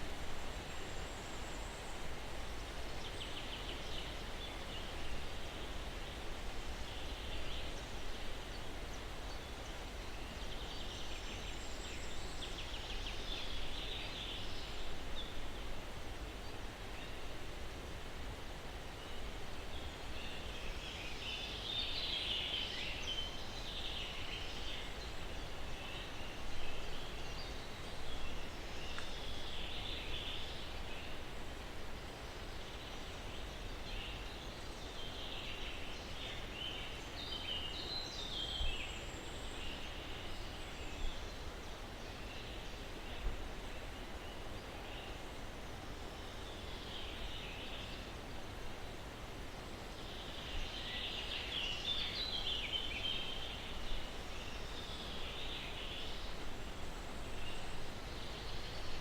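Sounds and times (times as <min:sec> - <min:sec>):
breeze through pine trees: 0:00.0 - 0:59.0.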